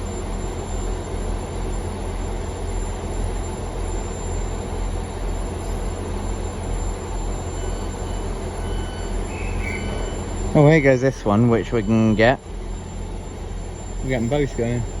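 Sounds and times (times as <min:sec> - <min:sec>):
train rumbling: 0:06.8 - 0:12.4.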